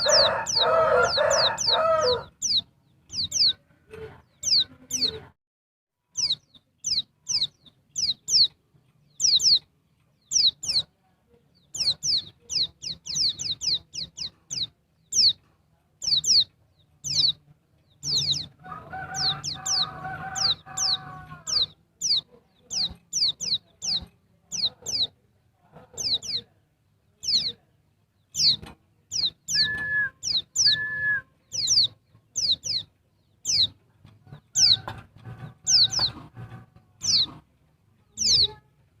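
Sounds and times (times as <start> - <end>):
lower rougher bird sound: 0.0 - 5.2, 28.2 - 37.4
high downward-sweeping bird chirps: 6.1 - 10.9, 28.3 - 33.8
short level whistles: 29.5 - 31.3.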